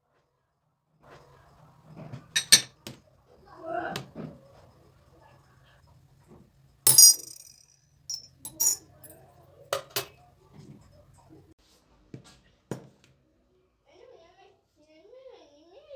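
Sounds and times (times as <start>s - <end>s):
dishes and cutlery clinking: 2.4s - 2.7s, 6.9s - 9.0s.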